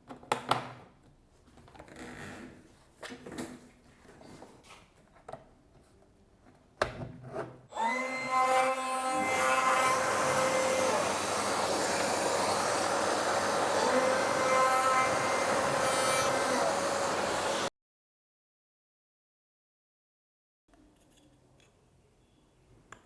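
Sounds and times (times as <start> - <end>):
palm router whining: 7.7 - 17.7.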